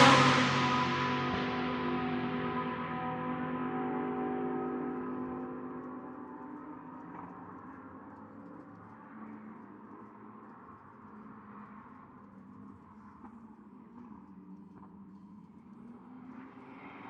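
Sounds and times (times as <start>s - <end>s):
race car engine pulling away: 0.0s - 7.4s
distant track noise: 0.0s - 8.8s.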